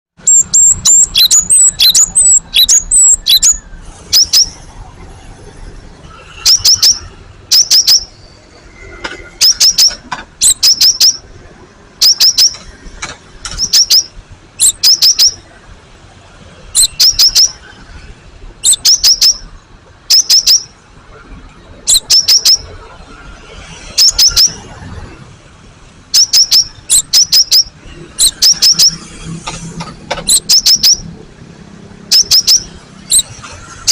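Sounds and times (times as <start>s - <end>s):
bird singing high notes: 0.2s - 4.7s, 6.2s - 11.3s, 12.0s - 12.8s, 13.5s - 15.5s, 16.8s - 17.7s, 18.6s - 19.5s, 20.1s - 20.8s, 21.9s - 22.8s, 23.8s - 24.7s, 26.2s - 29.1s, 30.3s - 31.1s, 32.1s - 33.9s.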